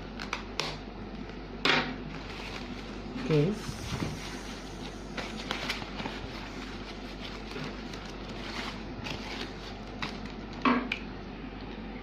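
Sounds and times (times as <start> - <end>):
packaging rustling: 2.1 - 10.6.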